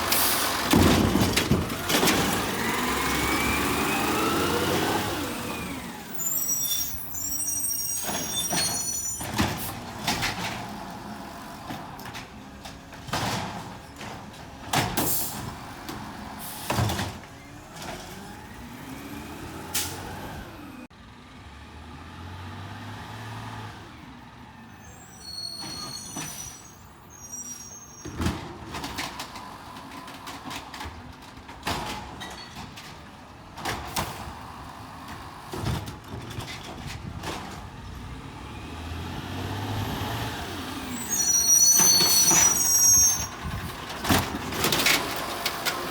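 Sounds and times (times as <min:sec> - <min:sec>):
garbage truck engine running: 0:00.0 - 0:21.6, 0:28.3 - 0:45.9
bangs and clatters: 0:00.6 - 0:02.5
high squealing: 0:06.1 - 0:09.3, 0:40.7 - 0:43.6.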